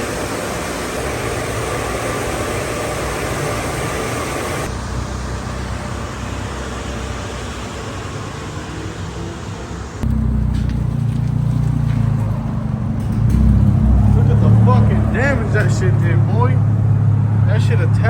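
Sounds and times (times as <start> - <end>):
hiss of spraying water: 0.0 - 4.7
car wash low rumble: 0.0 - 18.0.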